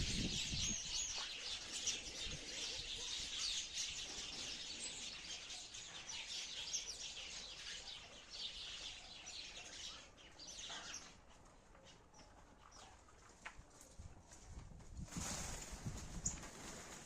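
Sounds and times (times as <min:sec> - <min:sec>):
sparrows chirping: 0:00.0 - 0:13.2.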